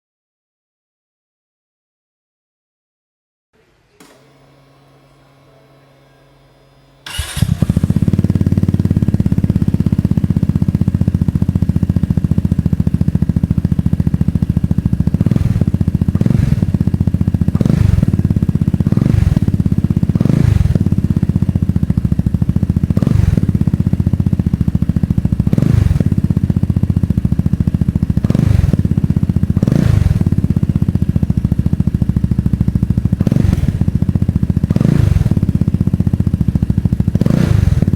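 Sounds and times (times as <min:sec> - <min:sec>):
faint hum: 0:03.6 - 0:07.8
engine throttle blips: 0:04.0 - 0:37.9
scooter engine idling: 0:04.0 - 0:37.9.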